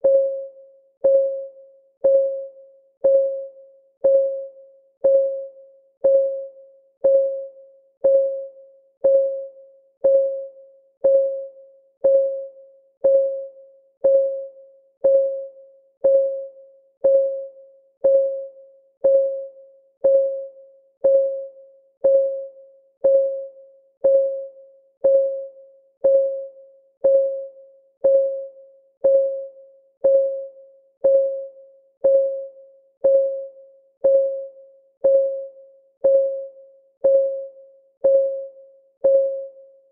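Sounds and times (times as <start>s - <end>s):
synthetic clock ticks: 23.0s - 39.6s.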